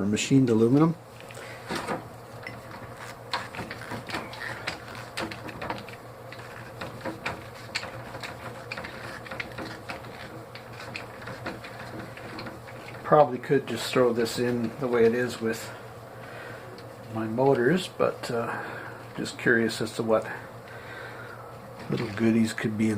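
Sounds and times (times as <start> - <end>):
faint steady hum: 0.0 - 22.9
metal tools clicking and tapping: 2.4 - 13.0.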